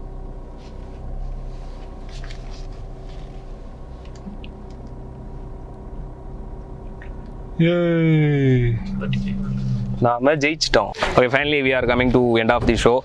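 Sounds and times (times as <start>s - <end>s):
car engine running low: 0.0s - 11.0s
parking sensor warning tone: 4.2s - 11.0s.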